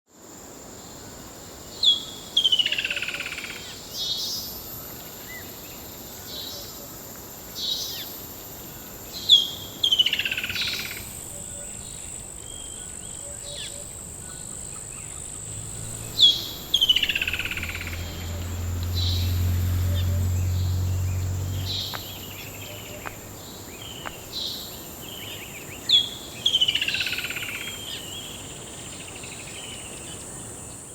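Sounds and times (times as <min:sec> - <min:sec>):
birds calling softly: 0:07.6 - 0:28.4
bird song with falling notes: 0:10.1 - 0:24.6.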